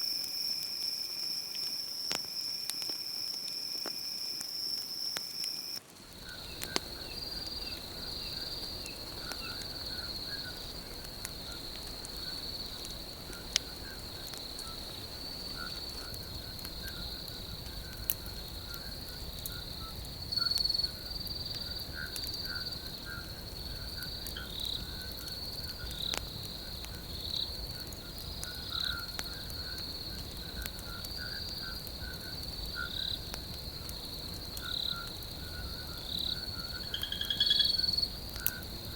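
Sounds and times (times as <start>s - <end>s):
low-pitched insect chirps: 0.0s - 10.6s, 34.6s - 38.6s
cricket trill: 0.0s - 38.9s.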